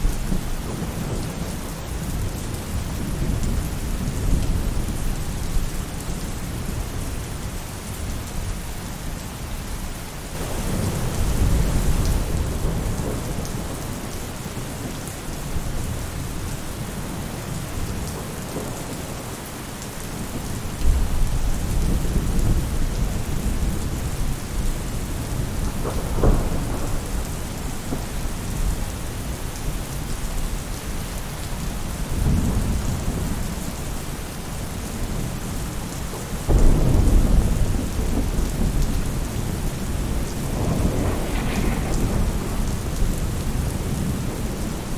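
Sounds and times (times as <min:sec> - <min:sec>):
thunder rumbling: 0:00.0 - 0:05.6, 0:10.4 - 0:19.3, 0:20.1 - 0:30.8, 0:36.2 - 0:44.9
rain falling on a roof: 0:00.0 - 0:44.9.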